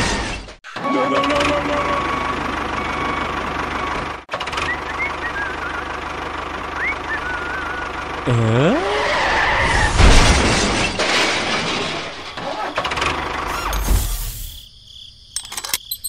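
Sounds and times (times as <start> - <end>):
tractor engine running: 0.8 - 8.5, 12.1 - 14.5.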